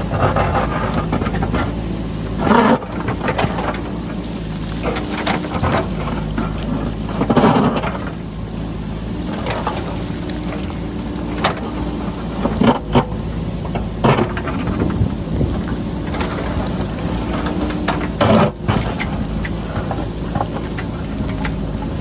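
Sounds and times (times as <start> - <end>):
backhoe diesel engine running: 0.0 - 22.0
rock and soil scraping: 0.0 - 22.0
wind rumble on microphone: 11.7 - 22.0.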